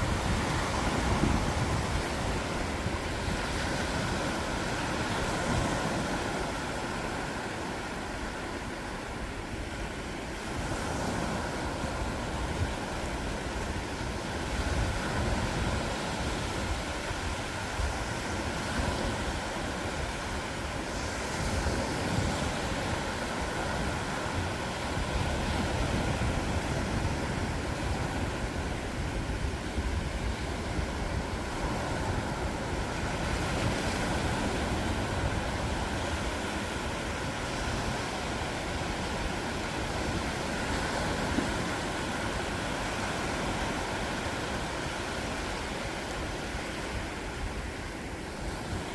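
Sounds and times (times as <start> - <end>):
ocean surf washing onto beach: 0.0 - 48.9.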